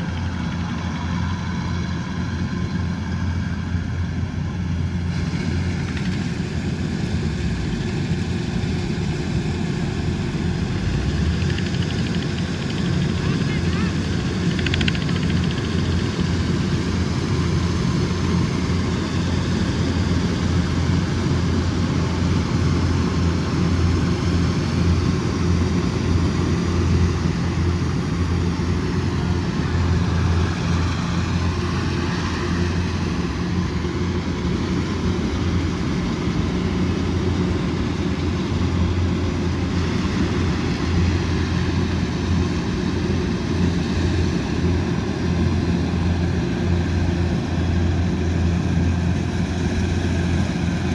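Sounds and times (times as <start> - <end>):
combine harvester engine drone: 0.0 - 50.9.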